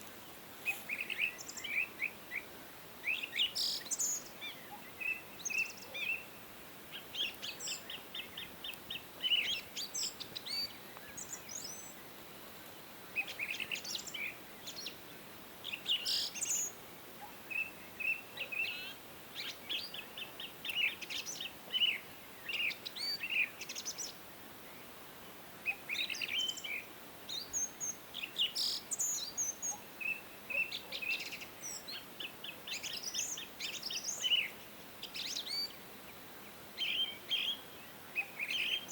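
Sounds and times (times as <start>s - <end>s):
faint background hiss: 0.0s - 38.9s
songbirds chirping and singing: 25.7s - 38.9s.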